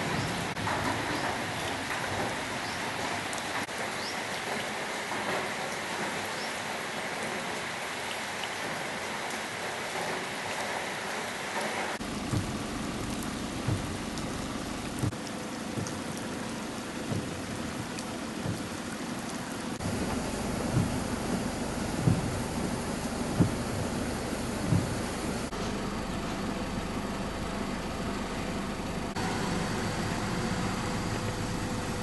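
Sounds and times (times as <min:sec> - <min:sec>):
steady rain falling: 0:00.0 - 0:32.0
low rumble: 0:12.0 - 0:15.2, 0:19.8 - 0:32.0
short low thumps: 0:12.0 - 0:16.2, 0:17.0 - 0:18.9, 0:19.8 - 0:25.5.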